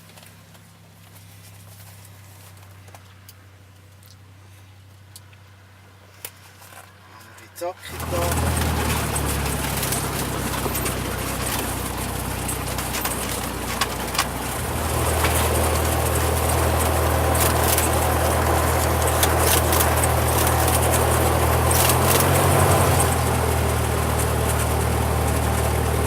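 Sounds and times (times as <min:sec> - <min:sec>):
piston aircraft engine running: 0:07.9 - 0:26.0.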